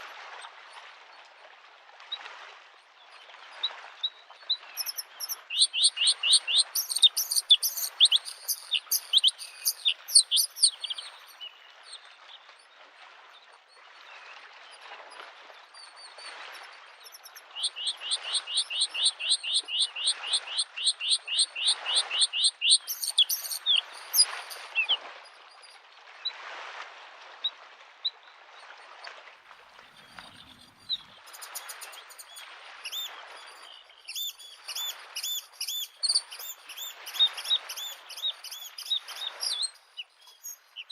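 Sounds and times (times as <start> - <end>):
waves lapping on shore: 0.0 - 40.9
bird singing high notes: 4.8 - 11.4, 17.8 - 24.9.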